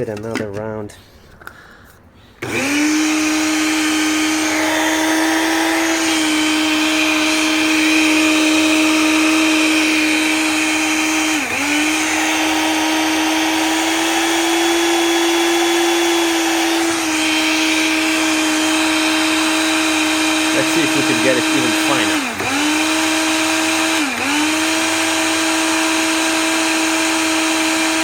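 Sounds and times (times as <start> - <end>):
electric coffee grinder grinding beans: 2.4 - 28.0.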